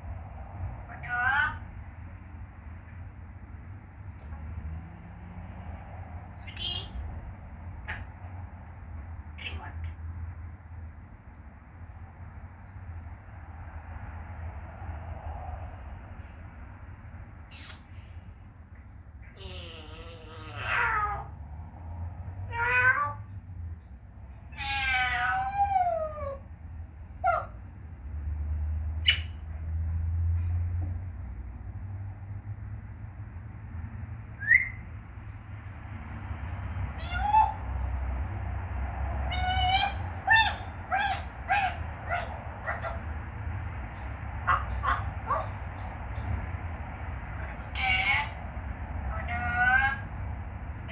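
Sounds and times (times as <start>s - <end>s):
parrot meow-like calls: 0.8s - 1.7s, 6.4s - 7.1s, 9.4s - 10.0s, 19.2s - 21.5s, 22.4s - 23.3s, 24.5s - 26.5s, 27.2s - 27.6s, 34.4s - 34.8s, 36.9s - 37.8s, 39.3s - 43.1s, 44.4s - 46.1s, 47.3s - 48.5s, 49.1s - 50.2s
parrot squeak and chirp: 6.4s - 7.0s, 17.5s - 17.9s, 19.3s - 21.3s, 24.5s - 26.4s, 29.0s - 29.5s, 34.4s - 34.8s, 37.0s - 37.6s, 39.3s - 43.0s, 44.5s - 46.3s, 47.4s - 48.4s, 49.1s - 50.1s
parrot whistle: 34.4s - 34.8s.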